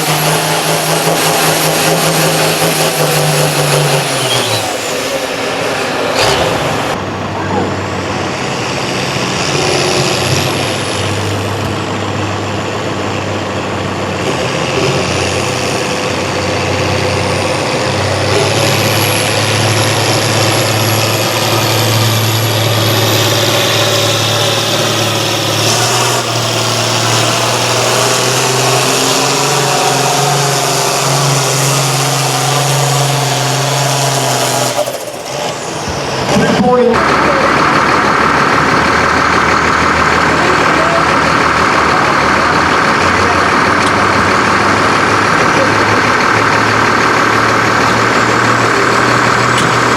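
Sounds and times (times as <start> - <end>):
tractor engine under load: 0.0 - 49.9
high whistle: 4.2 - 5.0.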